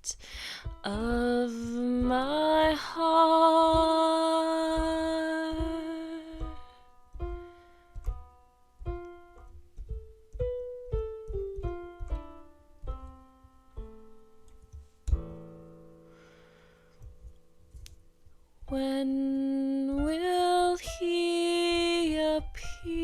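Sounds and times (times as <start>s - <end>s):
piano melody and chords: 0.0s - 23.0s
soft low beats: 0.6s - 15.7s.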